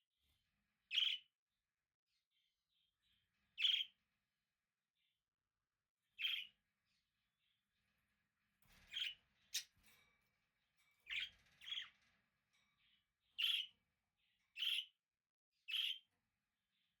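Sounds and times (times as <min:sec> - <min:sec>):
budgerigar chirping: 0:00.9 - 0:01.2, 0:03.6 - 0:03.9, 0:06.2 - 0:06.5, 0:13.4 - 0:13.7, 0:14.6 - 0:14.9, 0:15.7 - 0:16.0.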